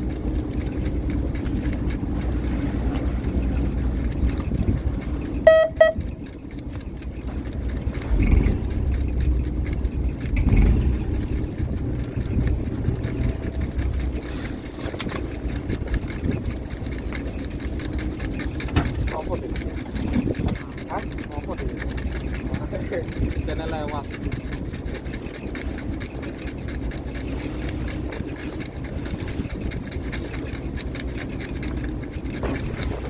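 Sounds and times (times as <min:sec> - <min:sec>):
boat engine rumbling: 0:00.0 - 0:33.0
short high beeps: 0:05.4 - 0:06.1.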